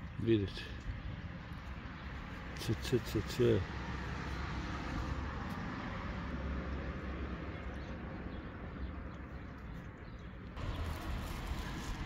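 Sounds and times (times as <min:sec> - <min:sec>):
passing vehicle rumble and hiss: 0:03.1 - 0:08.8, 0:10.6 - 0:12.0.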